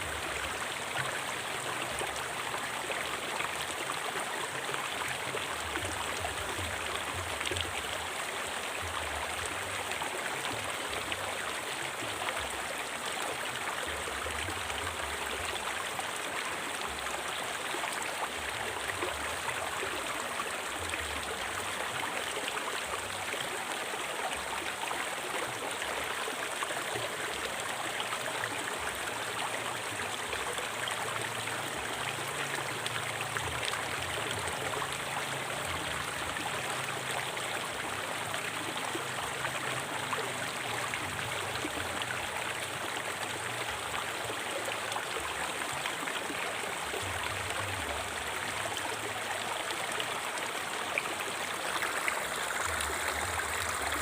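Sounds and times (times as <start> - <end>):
river water flowing over rocks: 0.0 - 54.0.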